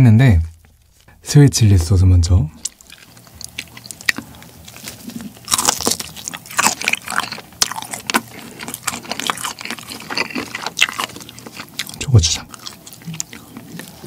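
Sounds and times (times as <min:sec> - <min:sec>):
close chewing sounds: 0:02.6 - 0:14.0.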